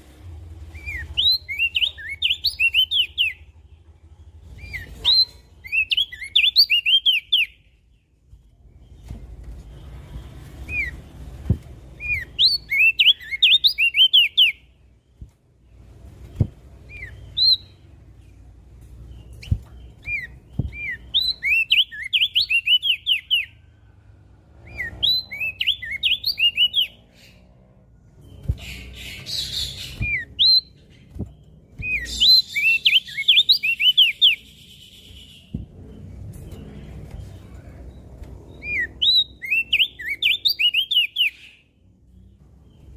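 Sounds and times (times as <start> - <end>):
low background rumble: 0.0 - 6.6, 14.6 - 22.0, 23.2 - 40.1
bird singing whistled notes: 0.8 - 3.5, 4.6 - 7.8, 12.0 - 14.7, 16.4 - 17.9, 19.2 - 23.6, 24.6 - 27.4, 28.2 - 36.1, 38.5 - 42.9.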